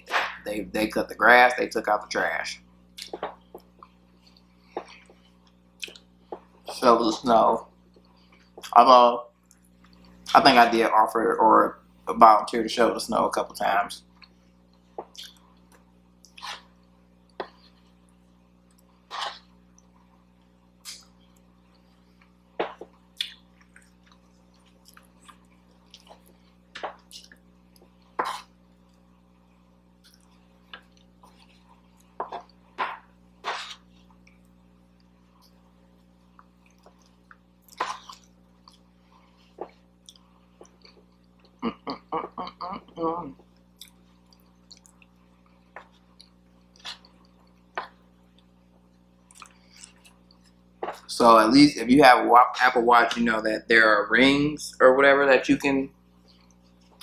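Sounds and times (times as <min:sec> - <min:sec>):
faint steady hum: 0:00.0 - 0:57.0
wet chewing mouth smacks: 0:03.0 - 0:06.4, 0:15.0 - 0:16.6, 0:22.7 - 0:28.0, 0:43.7 - 0:48.5, 0:49.2 - 0:50.6
person chewing soft food: 0:03.0 - 0:06.6, 0:14.1 - 0:29.1, 0:29.9 - 0:32.8, 0:33.4 - 0:51.1, 0:56.2 - 0:57.0.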